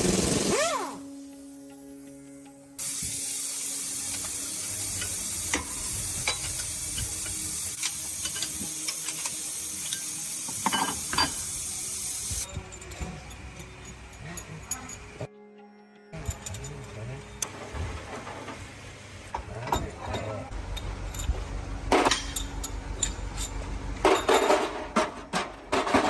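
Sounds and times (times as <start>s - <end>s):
steady hiss: 1.1s - 12.5s.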